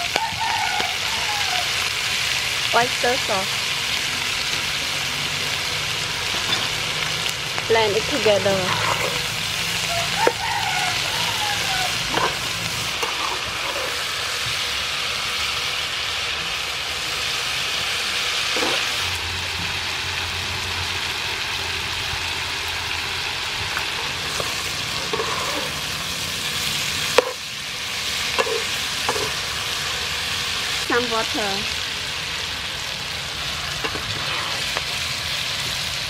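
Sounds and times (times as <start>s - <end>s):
food sizzling in frying pan: 0.0s - 36.0s
spatula stirring: 8.5s - 9.4s, 12.1s - 14.0s, 24.2s - 25.8s, 27.2s - 27.4s, 28.3s - 29.4s, 33.8s - 34.8s.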